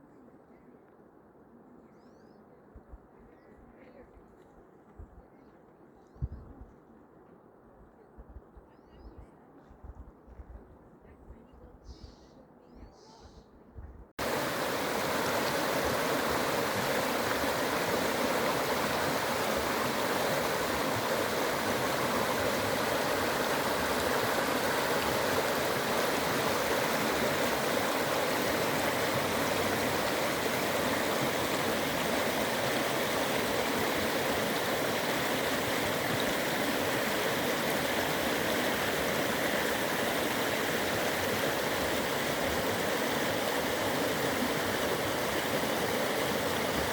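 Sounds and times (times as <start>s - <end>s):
mountain creek rushing: 14.2s - 46.9s.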